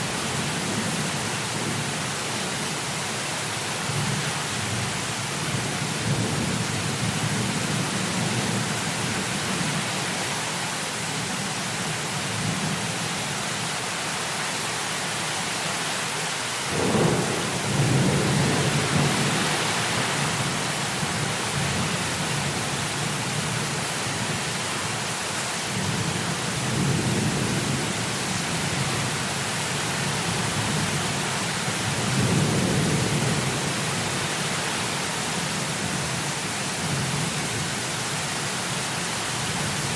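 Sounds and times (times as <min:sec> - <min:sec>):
heavy rain falling: 0:00.0 - 0:39.9
rolling thunder: 0:16.7 - 0:21.8.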